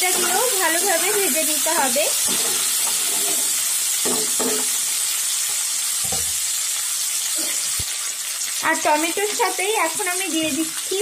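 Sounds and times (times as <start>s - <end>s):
spatula stirring: 0.0s - 4.7s
vegetables sizzling in oil: 0.0s - 11.0s.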